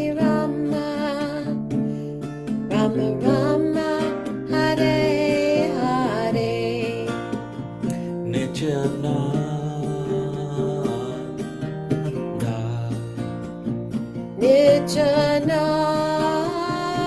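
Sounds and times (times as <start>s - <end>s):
person singing wavering melody: 0.0s - 1.6s, 2.7s - 7.1s.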